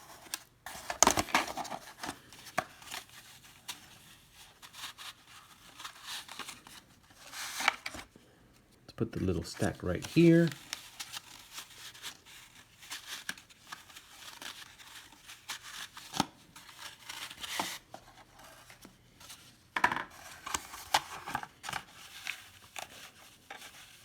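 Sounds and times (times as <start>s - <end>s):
trading cards rustling and scraping: 0.0s - 8.2s, 9.1s - 24.0s.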